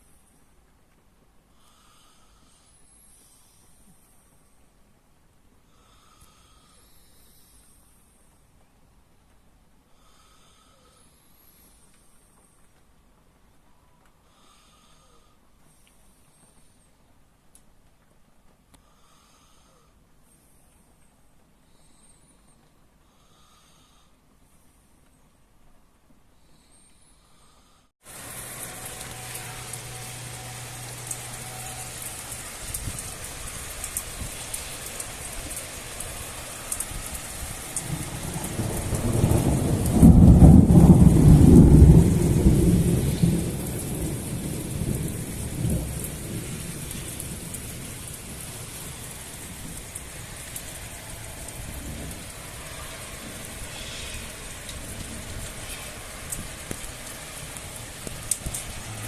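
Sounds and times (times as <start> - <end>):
heavy rain falling: 28.0 - 59.0
thunder rumbling: 28.1 - 59.0.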